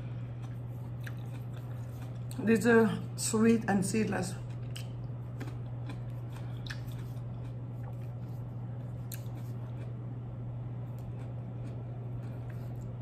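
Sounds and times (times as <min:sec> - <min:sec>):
person chewing a grape: 0:00.0 - 0:02.5, 0:04.4 - 0:10.0, 0:10.8 - 0:13.0
low electrical hum: 0:00.0 - 0:13.0.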